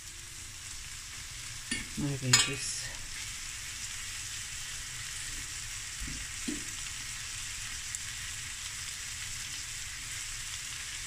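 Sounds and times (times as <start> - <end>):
chicken sizzling in a frying pan: 0.0 - 11.0
fork turning meat in pan: 1.7 - 2.8.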